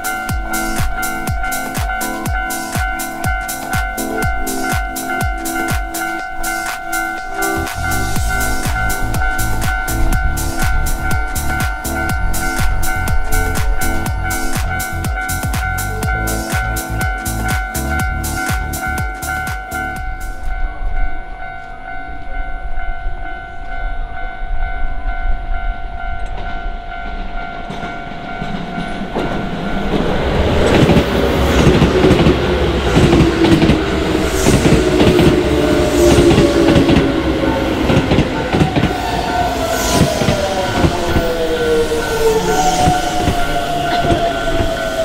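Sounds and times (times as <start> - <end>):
train wheels clacking: 0.0 - 20.5, 26.2 - 45.0
crossing warning bell ringing: 0.0 - 45.0
train motor whine: 29.2 - 45.0.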